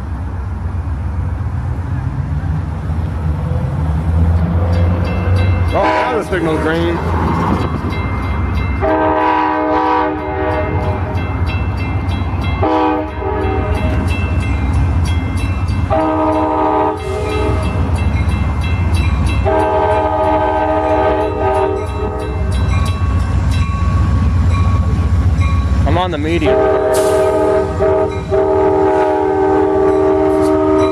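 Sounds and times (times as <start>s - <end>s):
train air horn blasts: 5.7s - 6.4s, 8.8s - 11.1s, 12.6s - 14.0s, 15.9s - 17.8s, 19.4s - 22.4s, 26.4s - 30.9s.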